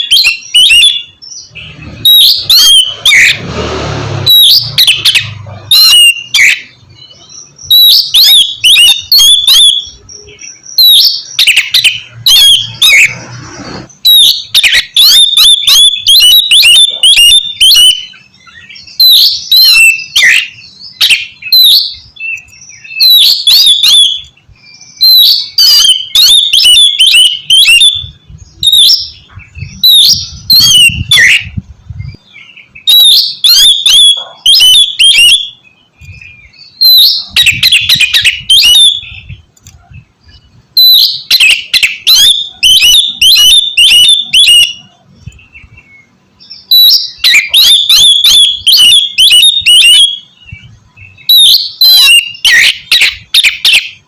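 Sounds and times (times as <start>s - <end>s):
bird singing whistled phrases: 0.0s - 3.4s, 4.3s - 13.2s, 14.0s - 39.4s, 40.2s - 54.0s.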